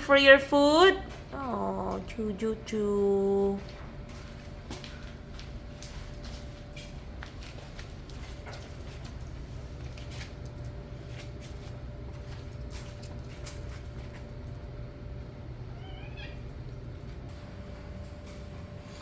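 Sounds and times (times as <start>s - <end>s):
cat meowing: 15.7s - 16.6s.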